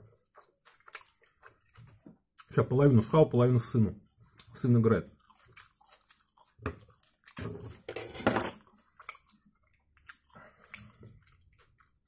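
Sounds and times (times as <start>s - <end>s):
man chewing wetly: 0.0s - 12.0s.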